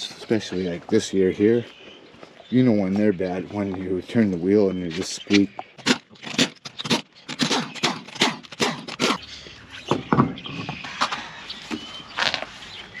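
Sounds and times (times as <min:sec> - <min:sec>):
ball joints squeaking and creaking: 0:09.9 - 0:12.5.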